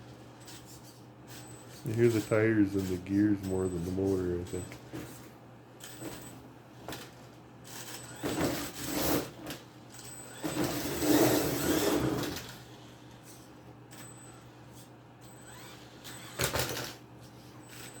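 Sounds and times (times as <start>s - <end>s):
rc truck tire and gear noise: 7.7s - 12.8s, 15.2s - 17.0s, 17.6s - 18.0s.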